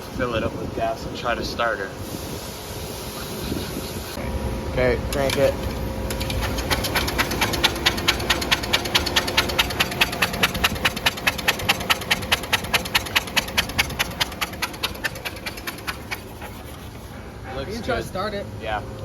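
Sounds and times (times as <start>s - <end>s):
engine cranking with starter: 5.1s - 16.8s.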